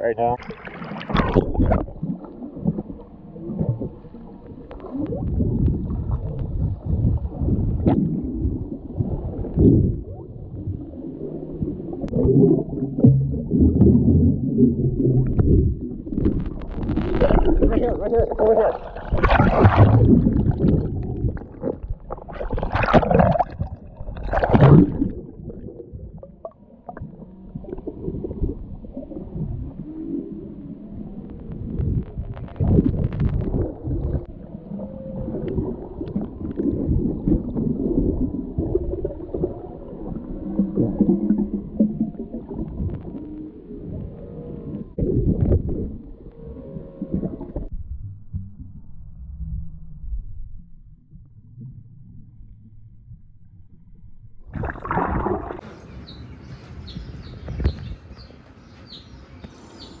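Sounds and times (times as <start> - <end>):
gurgling water: 0.0 - 47.7, 54.4 - 55.9
low rumble: 1.3 - 29.8, 44.7 - 55.8
knocks and splashes: 18.9 - 25.2, 54.6 - 55.8
whale song moaning tones: 25.4 - 31.8, 34.0 - 47.7
bird chirping: 55.6 - 60.0.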